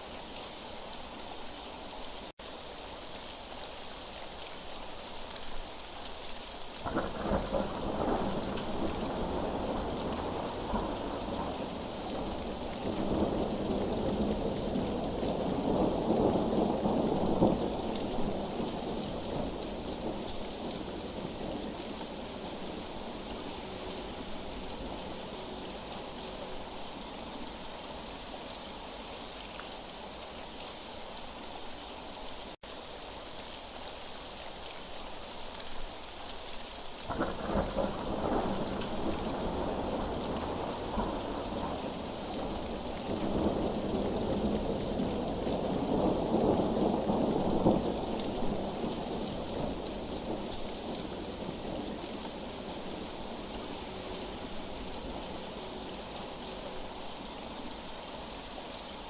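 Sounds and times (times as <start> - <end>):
steady rain falling: 0.0 - 59.0
thunder rumbling: 6.8 - 26.2, 37.1 - 56.4.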